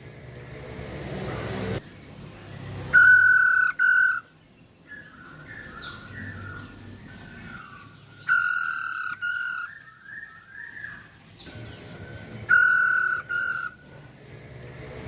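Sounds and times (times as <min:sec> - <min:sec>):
soft bird chirps: 0:01.3 - 0:14.0
bird loud two-note calls: 0:03.0 - 0:04.3, 0:12.5 - 0:13.8.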